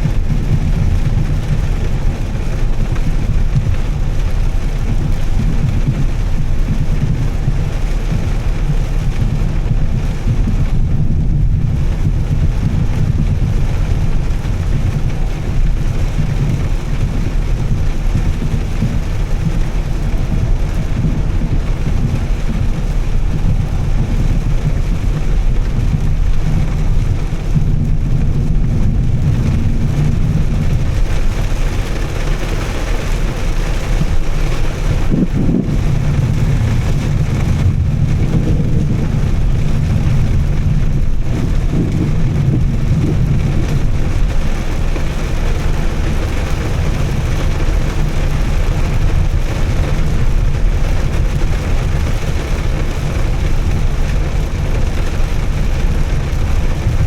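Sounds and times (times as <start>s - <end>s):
car engine low rumble: 0.0s - 57.0s
tyres hissing on wet road: 11.7s - 57.0s.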